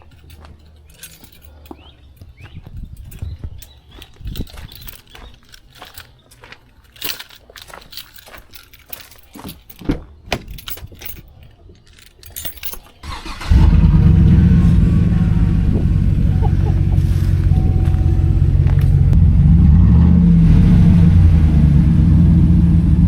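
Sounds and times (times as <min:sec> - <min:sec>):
light clicks and rattles: 0:00.0 - 0:13.4
loud truck engine running: 0:13.1 - 0:23.0.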